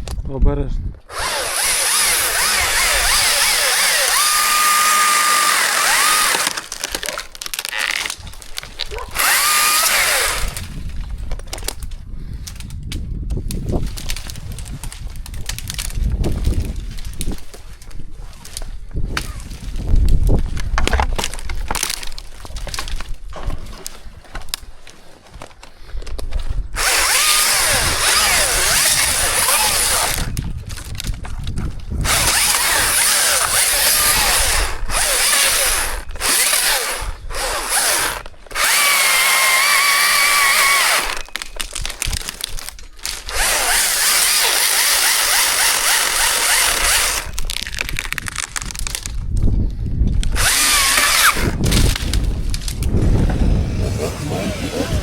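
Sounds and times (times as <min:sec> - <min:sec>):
chainsaw whine: 0:01.1 - 0:08.1, 0:09.1 - 0:10.8, 0:26.8 - 0:30.4, 0:32.0 - 0:41.4, 0:43.1 - 0:47.4, 0:50.3 - 0:52.0, 0:53.1 - 0:55.0
chainsaw cutting wood: 0:01.1 - 0:10.9, 0:26.7 - 0:30.9, 0:32.0 - 0:49.1, 0:50.2 - 0:55.0.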